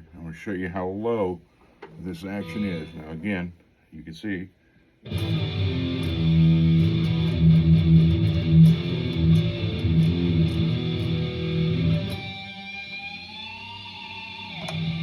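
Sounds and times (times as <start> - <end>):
electric guitar notes: 2.2 - 3.2, 5.1 - 15.0.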